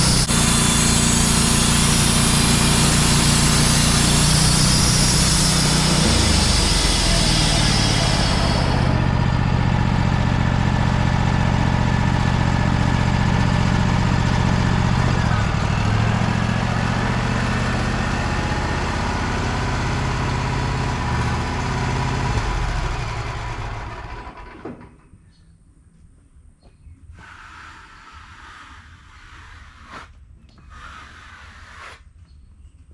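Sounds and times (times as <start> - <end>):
sawmill engine running: 0.0 - 24.9.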